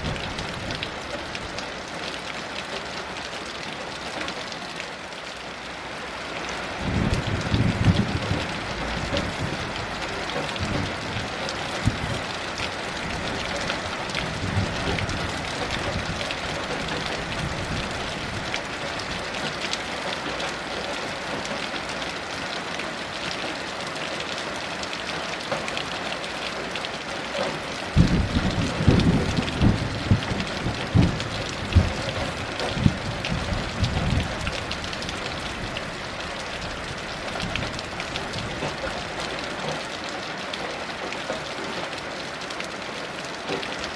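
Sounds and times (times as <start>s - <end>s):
heavy rain: 0.0s - 43.9s
thunder rumbling: 6.8s - 12.3s, 27.9s - 35.8s.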